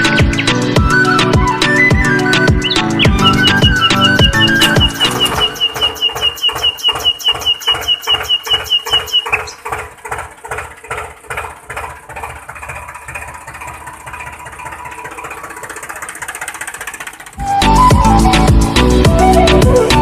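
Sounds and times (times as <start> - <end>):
model diesel engine knocking: 0.0 - 19.4
high squeak: 2.4 - 9.6.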